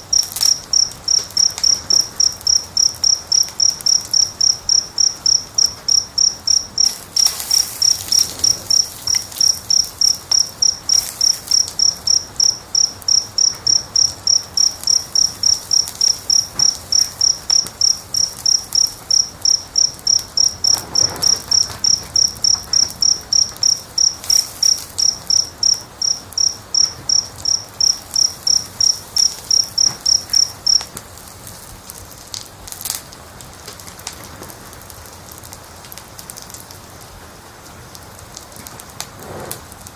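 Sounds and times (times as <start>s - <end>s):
cricket chirping: 0.0s - 31.3s
wood fire crackling: 0.0s - 39.9s.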